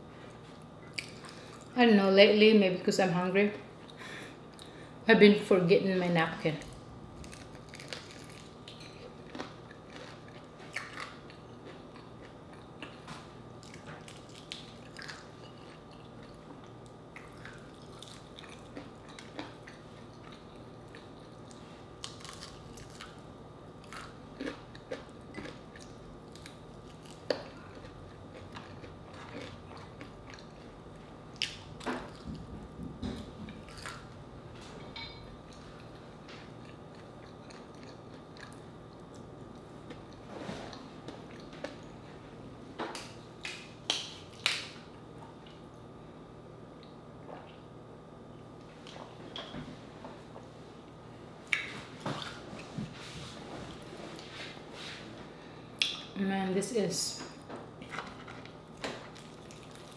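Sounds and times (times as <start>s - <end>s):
faint steady hum: 0.0s - 59.9s
crunching fried chicken: 7.2s - 32.3s, 58.2s - 59.9s.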